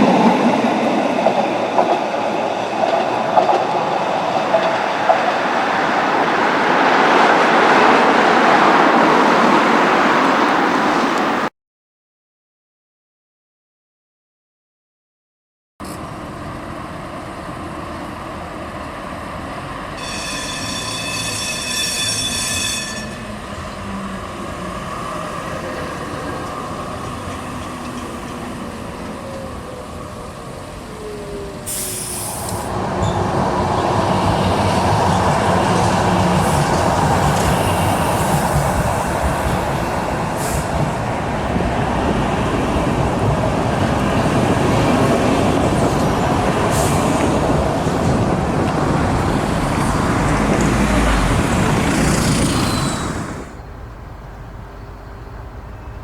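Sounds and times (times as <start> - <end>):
tram running on rails: 0.0 - 11.5, 15.8 - 56.0
high-pitched rail squeal: 19.9 - 41.2, 49.4 - 53.7.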